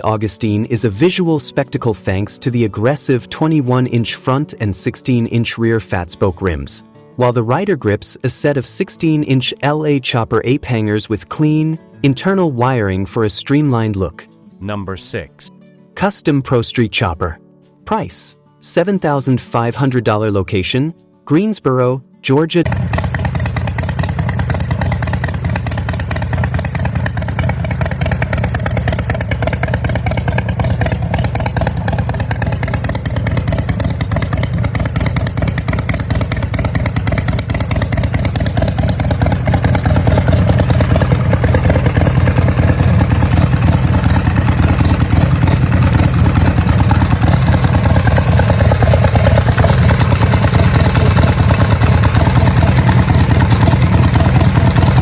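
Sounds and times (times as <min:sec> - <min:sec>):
motorcycle engine rumbling: 0:22.7 - 0:55.0.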